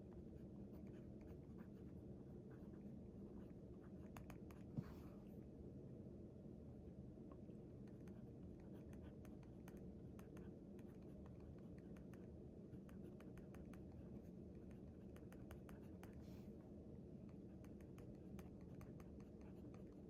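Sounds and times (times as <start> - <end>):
low room hum: 0.0 - 20.0
pen scratching on paper: 0.7 - 4.7.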